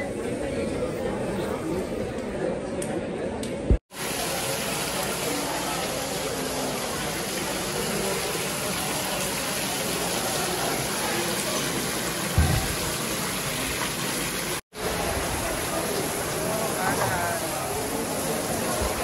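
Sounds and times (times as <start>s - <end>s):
rain: 3.9s - 19.0s.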